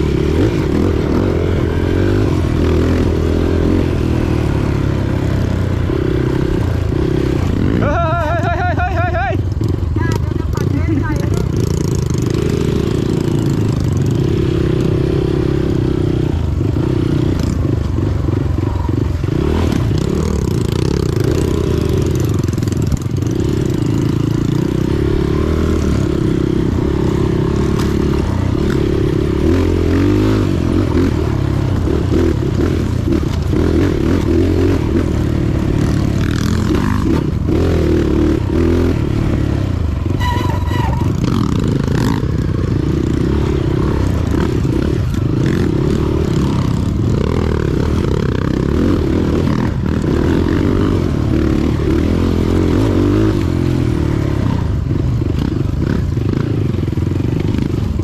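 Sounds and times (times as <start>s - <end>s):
motorcycle engine running: 0.0s - 58.0s
brief high squeal: 40.1s - 41.2s.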